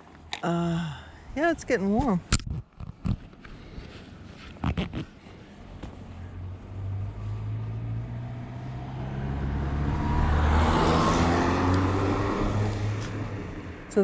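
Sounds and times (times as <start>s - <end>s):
car driving past: 6.3s - 13.9s.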